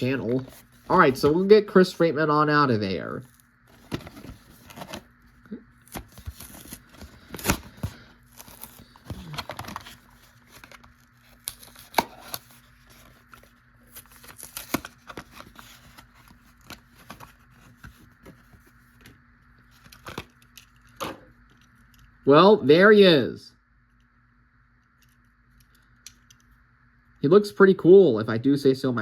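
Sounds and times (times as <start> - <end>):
packaging tearing and crinkling: 5.8 - 17.5.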